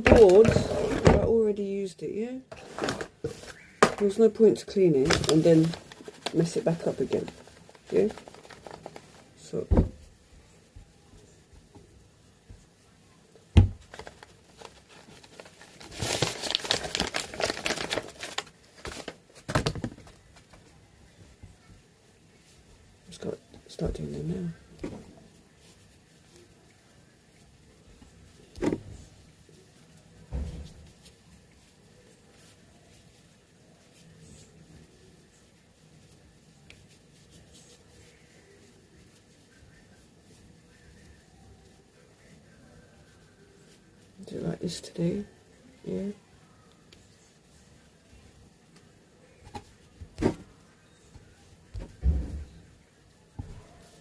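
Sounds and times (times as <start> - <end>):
crinkling and rustling: 0.0 - 1.7, 2.3 - 42.0, 45.9 - 54.0
hands handling dough: 0.0 - 1.7, 2.5 - 54.0
thud: 30.3 - 30.8, 50.2 - 50.5, 51.8 - 52.6.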